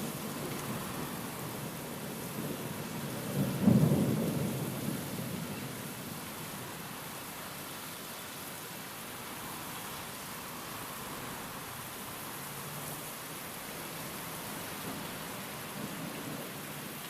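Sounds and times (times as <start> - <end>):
steady rain hiss: 0.0 - 17.0
thunder rumbling: 0.1 - 6.1.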